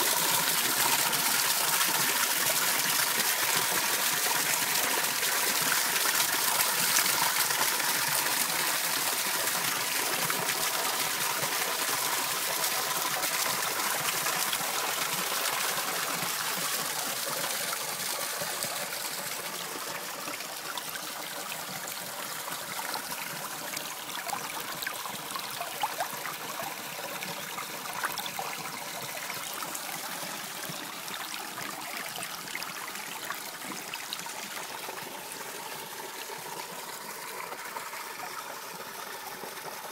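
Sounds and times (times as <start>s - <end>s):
water splashes: 0.0s - 34.8s
running water trickling: 12.8s - 39.7s.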